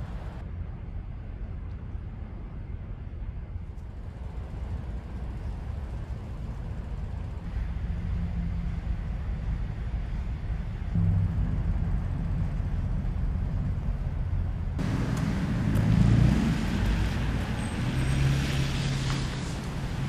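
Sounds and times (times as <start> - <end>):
engine rumbling low: 0.0 - 20.0
car passing with tyre noise: 4.0 - 20.0.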